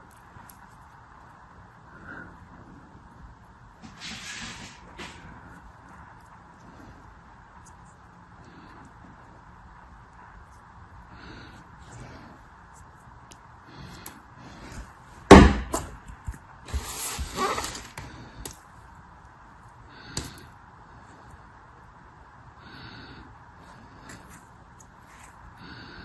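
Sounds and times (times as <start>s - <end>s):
sharp loud knock: 15.3s - 15.9s.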